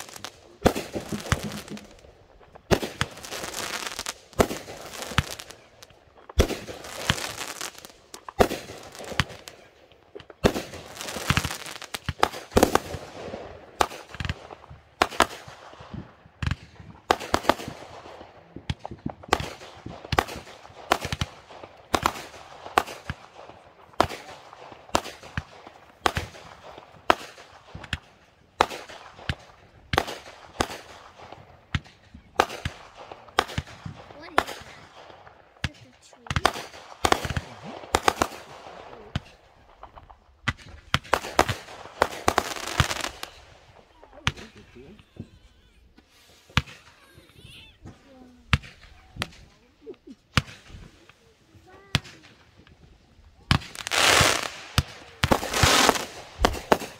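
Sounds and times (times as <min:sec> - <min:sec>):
fireworks bangs and crackle: 0:00.0 - 0:56.9.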